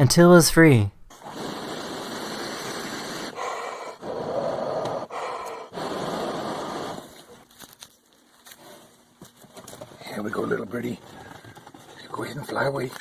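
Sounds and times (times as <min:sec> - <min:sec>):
man blowing breaths: 0:01.2 - 0:07.4.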